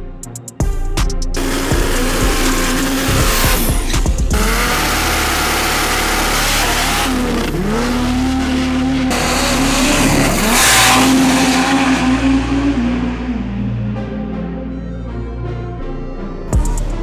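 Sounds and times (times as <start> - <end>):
diesel engine revving: 1.4 - 14.8.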